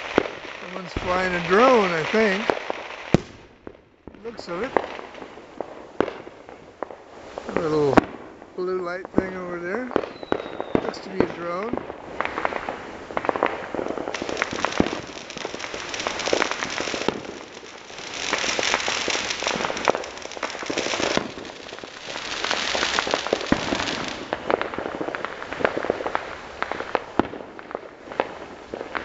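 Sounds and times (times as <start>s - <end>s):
firecrackers crackling: 0.0s - 29.0s
firework bangs: 0.0s - 29.0s.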